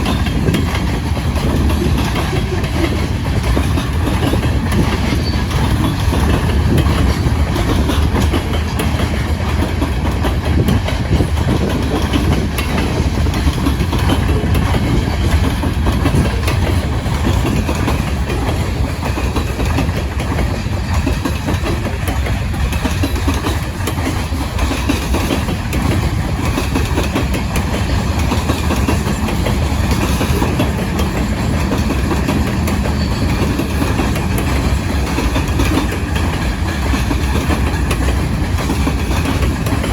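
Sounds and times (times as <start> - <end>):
freight train rumbling: 0.0 - 39.9
steel wheels clattering on rails: 0.0 - 39.9.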